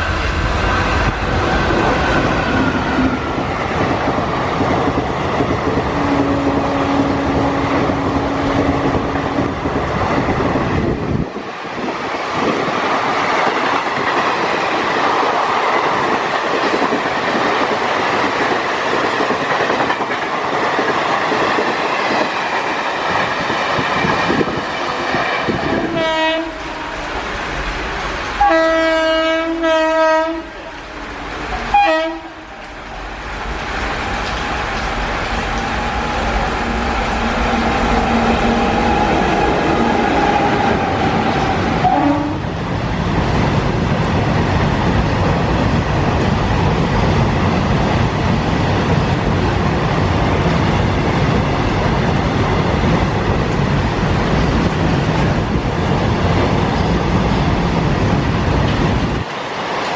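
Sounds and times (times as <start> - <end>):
train wheels clattering on track: 0.0 - 30.1
locomotive horn blasts: 25.9 - 26.8, 28.4 - 30.6, 31.7 - 32.5, 41.8 - 42.4.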